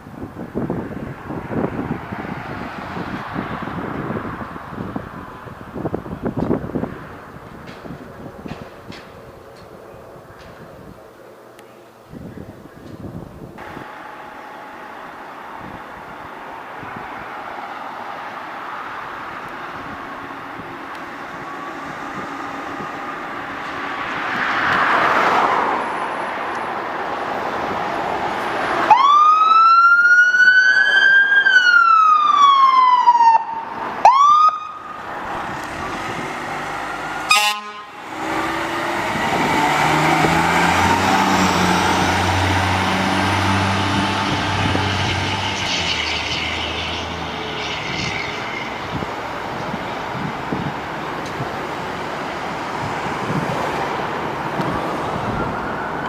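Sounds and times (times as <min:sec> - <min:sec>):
low engine drone: 0:13.6 - 0:17.5
fire engine siren wail: 0:13.6 - 0:24.2, 0:27.6 - 0:56.0
siren chirp: 0:28.9 - 0:35.0, 0:55.2 - 0:56.0
horn blast: 0:37.1 - 0:39.2.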